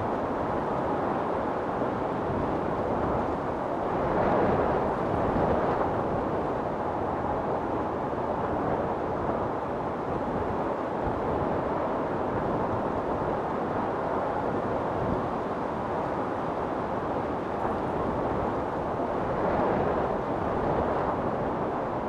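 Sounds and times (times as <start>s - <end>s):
wind storm rushing: 0.0s - 22.0s.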